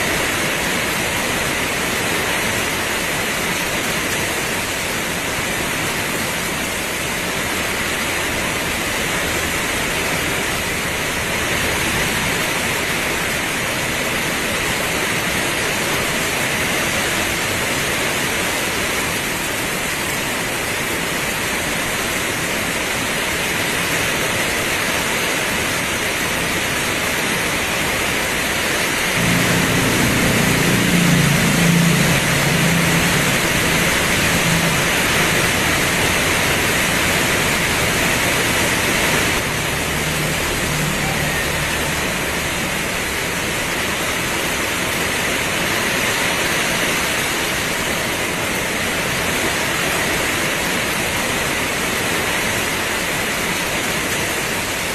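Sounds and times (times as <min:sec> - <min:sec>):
heavy rain pouring: 0:00.0 - 0:54.9
low rumble: 0:29.2 - 0:44.6.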